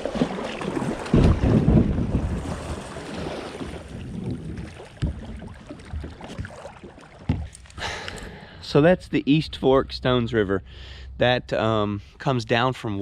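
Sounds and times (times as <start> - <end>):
wind buffeting microphone: 1.0 - 6.5.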